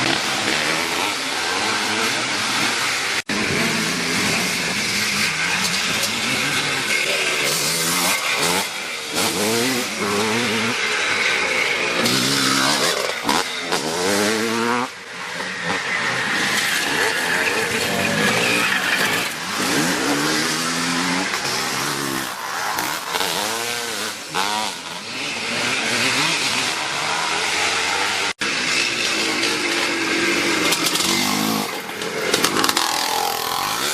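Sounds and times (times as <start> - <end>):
motocross motorcycles revving: 0.0 - 33.9.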